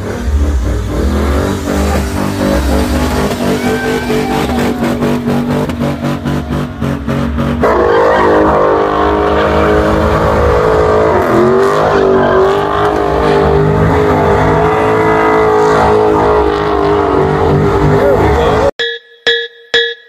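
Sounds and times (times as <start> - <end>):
car engine revving high: 0.0 - 18.7
tyres squealing: 1.7 - 8.5, 11.7 - 15.2.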